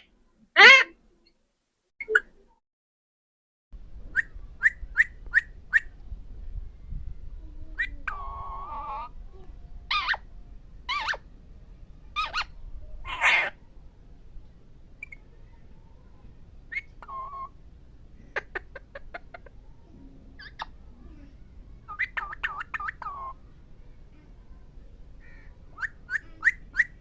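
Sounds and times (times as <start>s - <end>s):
parrot calling: 0.6s - 1.0s, 7.8s - 9.1s, 9.9s - 10.2s, 10.9s - 11.2s, 12.2s - 13.6s, 16.7s - 17.6s, 21.9s - 23.4s, 25.2s - 27.0s.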